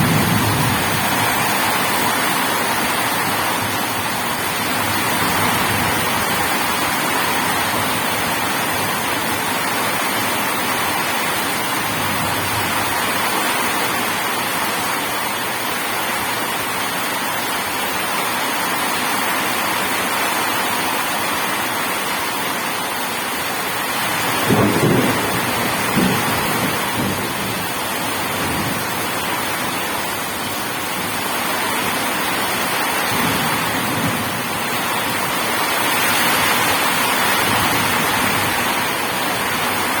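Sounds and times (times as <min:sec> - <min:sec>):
thunder rumbling: 0:00.0 - 0:14.3, 0:24.0 - 0:40.0
rain pouring: 0:00.0 - 0:40.0.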